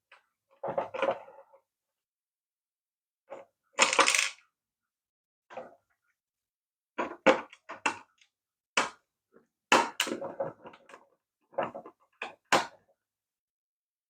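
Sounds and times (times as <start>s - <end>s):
plastic parts clicking and knocking: 3.4s - 4.4s, 7.0s - 12.9s.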